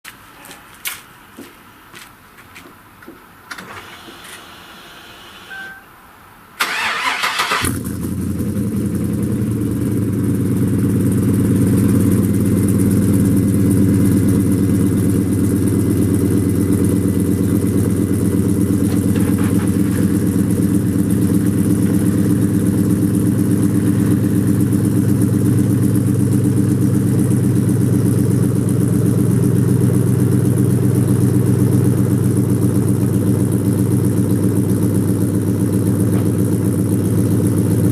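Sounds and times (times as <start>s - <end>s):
engine cranking: 6.6s - 7.9s
engine idling: 6.6s - 37.9s.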